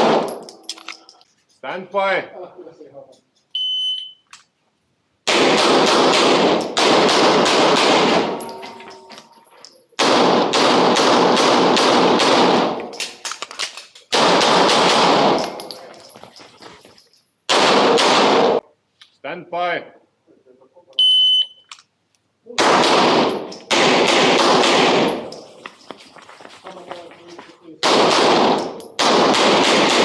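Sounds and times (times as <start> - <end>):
pistol shots with echo: 0.0 - 0.4, 5.3 - 8.6, 10.0 - 13.0, 14.1 - 15.7, 17.5 - 18.6, 22.6 - 25.4, 27.8 - 30.0
shot timer beep: 3.6 - 4.3, 21.0 - 21.6.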